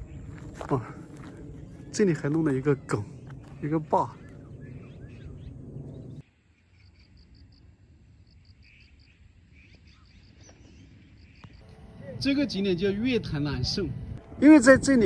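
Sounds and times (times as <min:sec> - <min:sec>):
low rumbling noise: 0:00.0 - 0:06.2.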